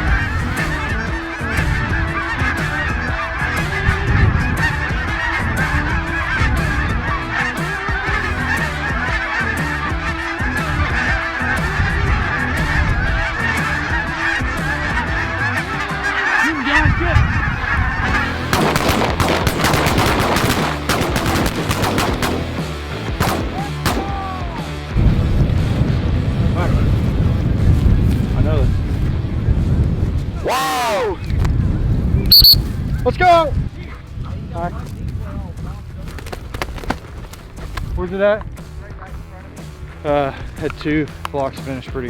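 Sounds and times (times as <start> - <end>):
geese honking: 0.0 - 24.1, 32.3 - 32.7
sharp cracks: 18.5 - 24.1.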